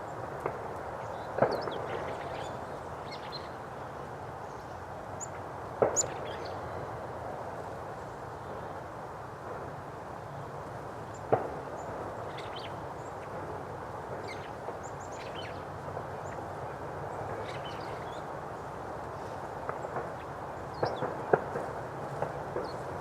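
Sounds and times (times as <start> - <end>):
steady background hiss: 0.0 - 23.0
small birds chirping: 17.4 - 18.2.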